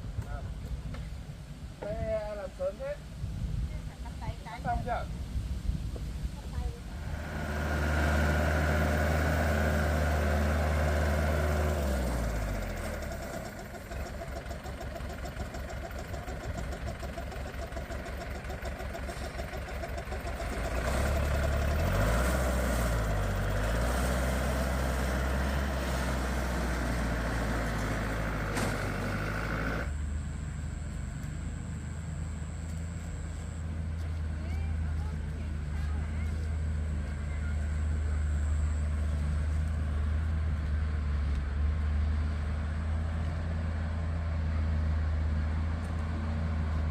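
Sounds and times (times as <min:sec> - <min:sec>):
small engine chugging: 0:07.0 - 0:40.2.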